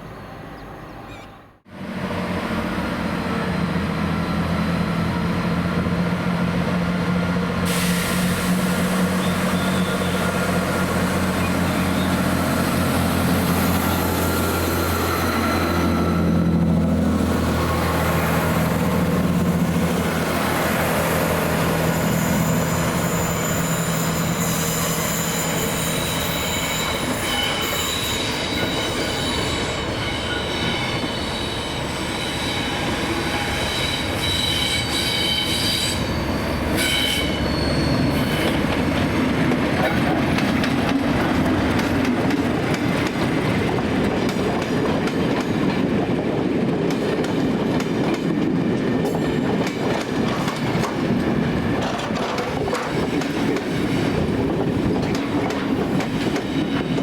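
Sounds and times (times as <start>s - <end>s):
train rolling rumble: 0.0s - 57.0s
wheels squealing on rails: 7.6s - 16.8s, 17.4s - 39.0s, 49.0s - 57.0s.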